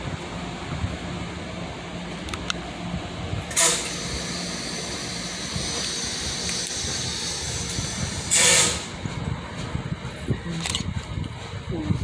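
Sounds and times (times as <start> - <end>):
train equipment humming: 0.0 - 12.0
compressed air hiss: 3.5 - 9.0.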